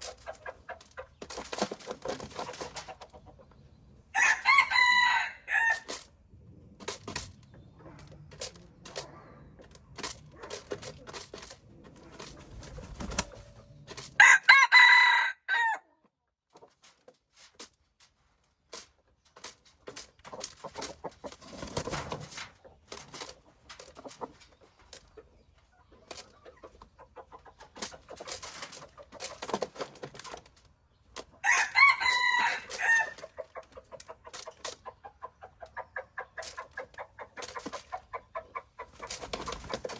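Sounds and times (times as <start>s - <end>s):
rooster crowing: 4.1s - 5.9s, 14.2s - 15.8s, 31.4s - 33.2s.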